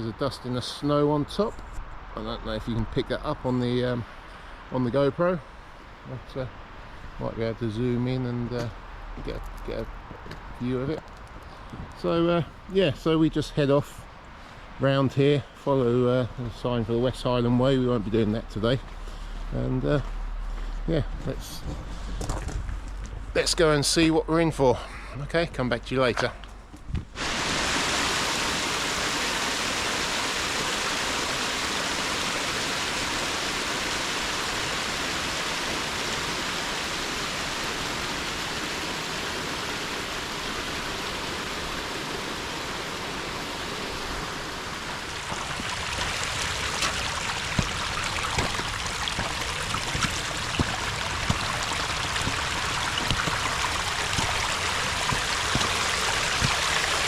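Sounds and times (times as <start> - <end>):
rushing water: 27.2 - 57.0.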